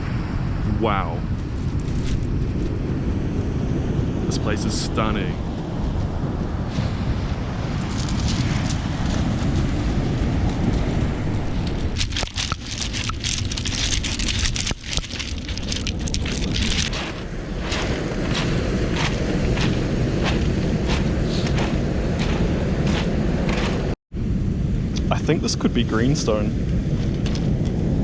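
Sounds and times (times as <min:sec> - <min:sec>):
wind buffeting microphone: 0:00.0 - 0:28.0
footsteps crunching on stones: 0:11.6 - 0:24.0.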